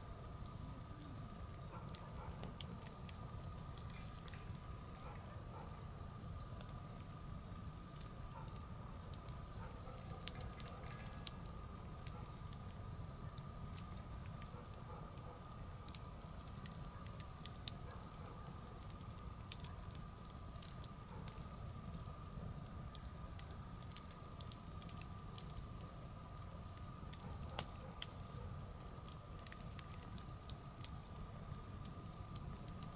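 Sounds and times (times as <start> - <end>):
bonfire crackling and popping: 0.0 - 32.9.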